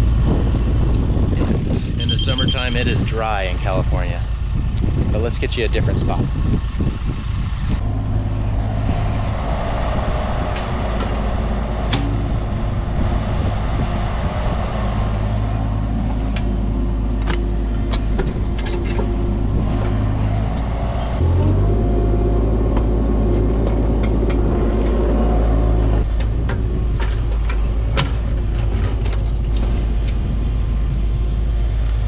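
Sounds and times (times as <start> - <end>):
diesel engine running: 0.0 - 32.0
clanks and knocks: 10.4 - 21.3, 26.0 - 30.3.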